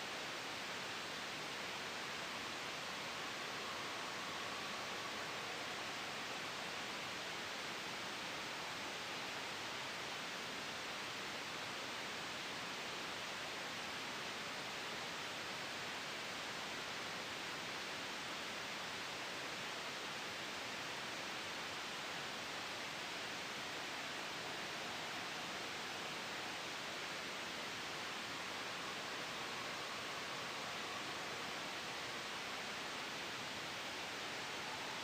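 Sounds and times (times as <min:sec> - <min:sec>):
white noise hiss: 0:00.0 - 0:35.0.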